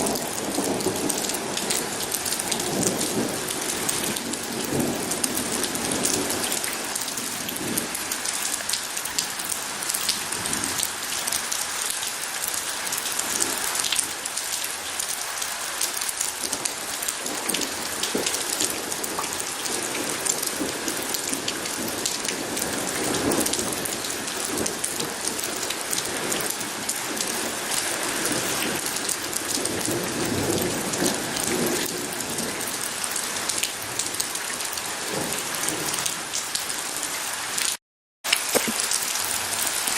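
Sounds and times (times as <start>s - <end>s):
distant thunder rumbling: 0.0s - 8.0s
rain on a hard surface: 0.0s - 39.9s.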